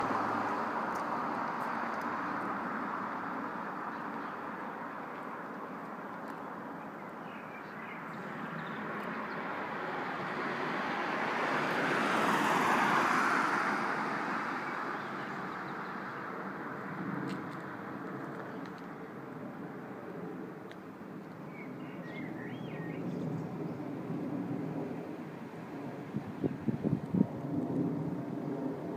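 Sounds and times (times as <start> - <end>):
jet airliner passing overhead: 8.0 - 28.9.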